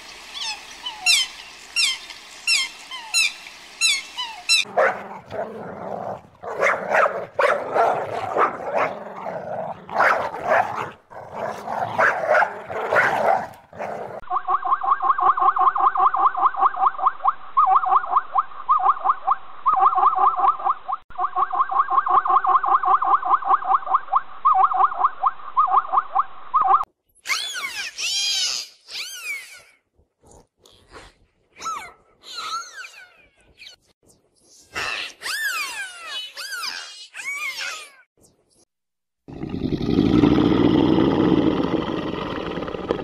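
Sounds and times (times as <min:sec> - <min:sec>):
dog barking and whining: 0:04.2 - 0:14.2.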